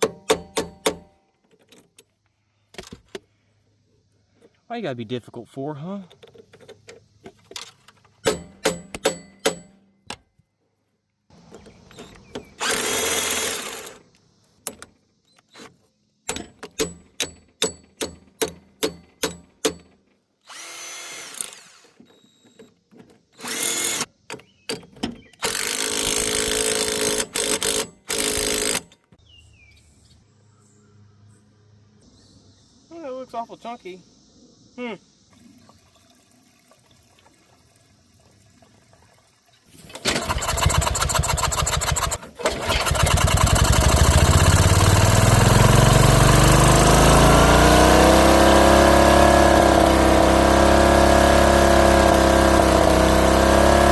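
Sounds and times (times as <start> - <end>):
sharp metallic taps: 8.2 - 10.2, 16.3 - 20.0
power drill bursts: 11.9 - 14.1, 20.4 - 22.6, 23.3 - 24.1, 25.4 - 28.9, 39.9 - 53.9.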